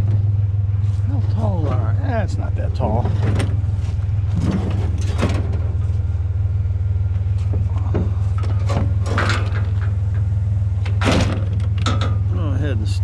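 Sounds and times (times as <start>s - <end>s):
vehicle engine idling: 0.0s - 13.0s
scrap items clunking and rattling: 0.8s - 6.1s, 7.2s - 12.3s.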